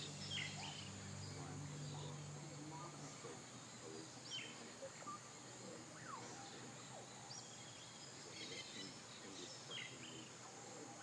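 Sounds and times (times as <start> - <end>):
high insect hum: 0.0 - 11.0
birds whistling: 6.0 - 10.3.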